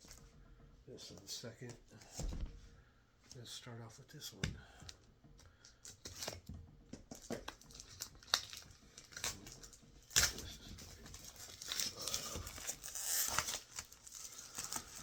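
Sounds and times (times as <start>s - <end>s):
packaging crinkling and tearing: 7.1s - 15.0s.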